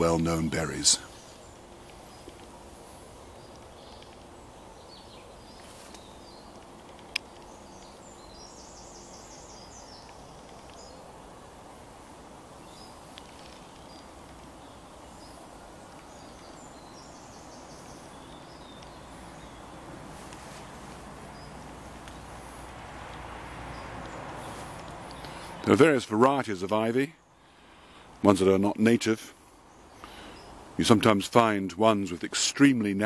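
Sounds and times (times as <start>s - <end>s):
low background noise: 0.0s - 33.0s
small birds chirping: 0.0s - 33.0s.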